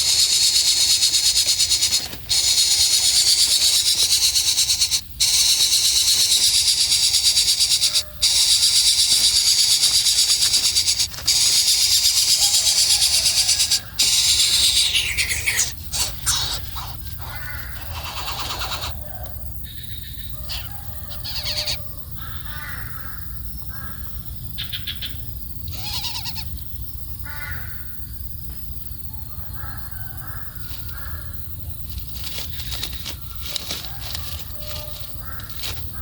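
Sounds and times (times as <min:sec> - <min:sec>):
high bird chirping: 0:00.0 - 0:19.0
birds calling harshly: 0:00.0 - 0:28.1, 0:29.3 - 0:36.0.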